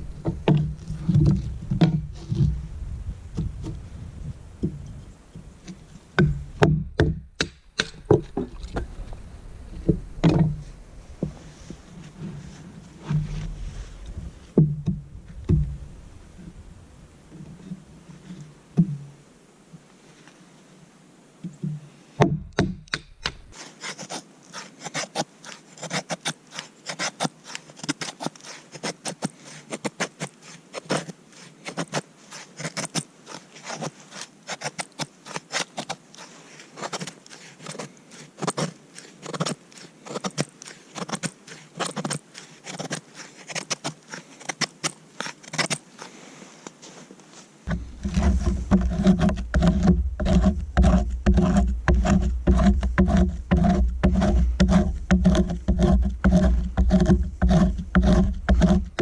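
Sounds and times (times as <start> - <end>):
hand tool scraping wood: 22.6 - 46.8, 47.6 - 59.0.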